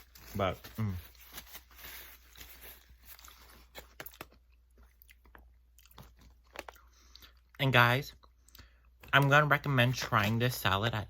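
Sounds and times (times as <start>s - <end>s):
person chewing crunchy food: 2.7s - 7.6s.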